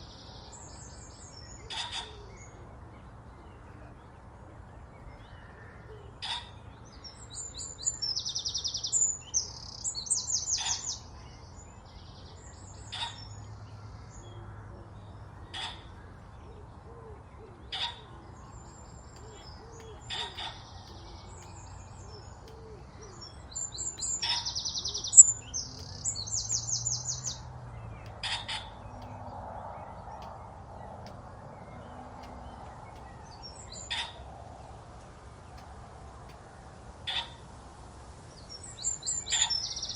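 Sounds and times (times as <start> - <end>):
songbird singing trilled phrases: 4.9 - 16.6, 17.2 - 34.4, 38.4 - 39.9.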